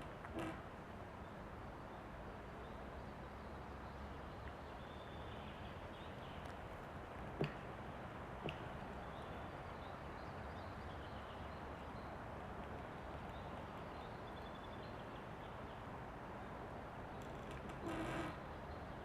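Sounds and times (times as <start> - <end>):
wind through a forest: 0.0 - 19.0
tree trunk creaking: 0.2 - 0.7, 17.2 - 18.4.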